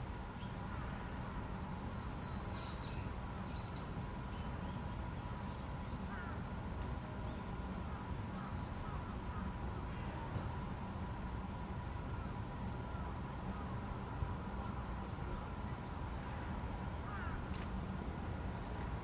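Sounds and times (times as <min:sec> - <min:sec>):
faint constant hum: 0:00.0 - 0:19.0
outdoor background rumble: 0:00.0 - 0:19.0.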